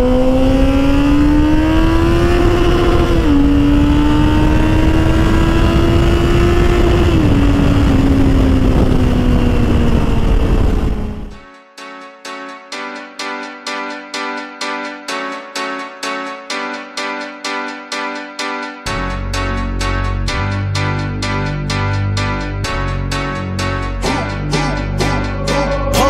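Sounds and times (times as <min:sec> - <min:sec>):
motorcycle engine accelerating: 0:00.0 - 0:11.4.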